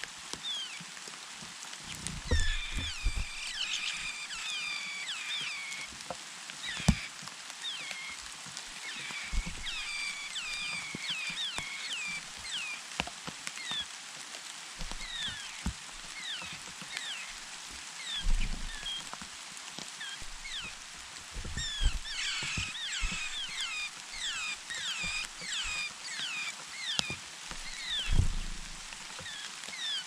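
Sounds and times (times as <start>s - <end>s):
nestling birds chirping: 0.4s - 0.8s, 1.8s - 6.0s, 6.6s - 12.9s, 13.6s - 13.9s, 14.8s - 19.2s, 19.9s - 30.0s
low thumps: 21.4s - 24.4s, 27.8s - 28.9s.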